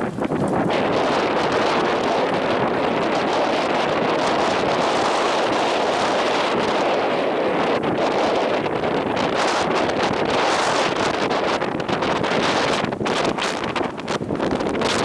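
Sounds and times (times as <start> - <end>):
sea water at the shore: 0.0 - 15.0
wind: 0.0 - 15.0.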